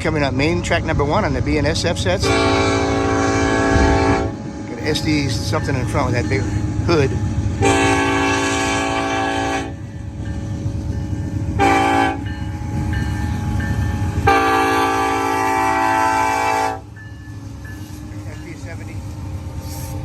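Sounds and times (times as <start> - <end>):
train rumbling: 0.0 - 20.0
locomotive air horn: 2.2 - 4.4, 7.6 - 9.8, 11.6 - 12.2, 14.2 - 16.9.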